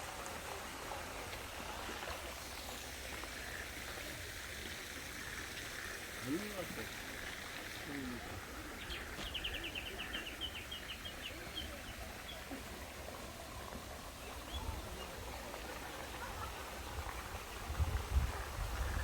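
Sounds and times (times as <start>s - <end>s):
songbird calling: 8.0s - 12.5s.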